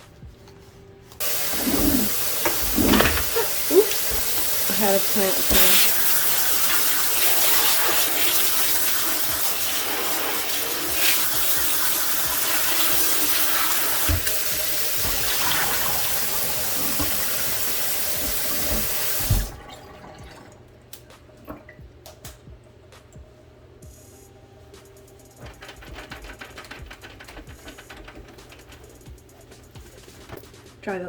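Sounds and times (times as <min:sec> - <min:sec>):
tap water running into sink: 0:01.2 - 0:20.6.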